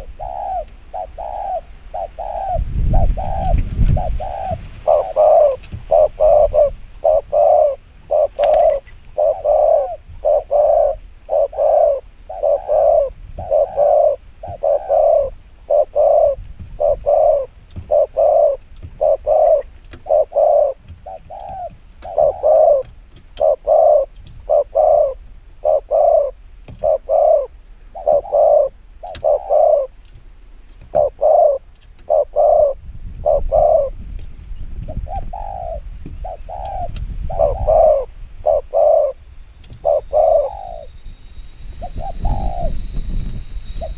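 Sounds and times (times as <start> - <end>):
dove cooing rapidly: 0.0 - 30.1, 30.8 - 34.0, 34.9 - 40.9, 41.8 - 43.1.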